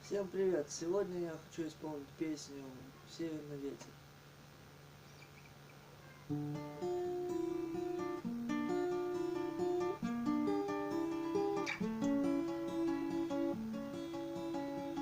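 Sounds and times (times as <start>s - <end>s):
acoustic guitar picking: 6.3s - 15.0s.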